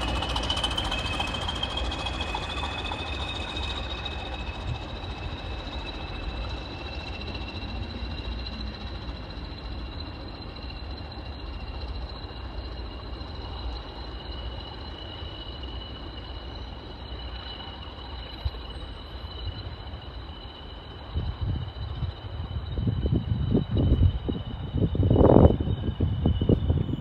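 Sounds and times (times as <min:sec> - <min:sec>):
high-pitched whining tones: 0:00.0 - 0:27.0
train rumbling: 0:00.0 - 0:27.0
wind buffeting microphone: 0:21.1 - 0:27.0.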